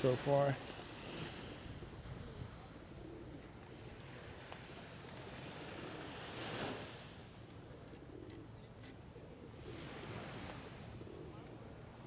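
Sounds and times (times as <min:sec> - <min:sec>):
sea surf on sandy beach: 0:00.0 - 0:02.0, 0:04.2 - 0:07.3.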